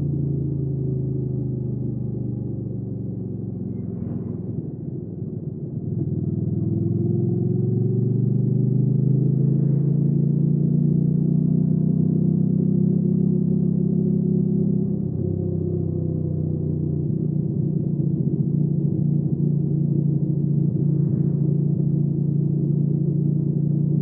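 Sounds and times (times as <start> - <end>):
motorcycle engine while riding: 5.8 - 24.0.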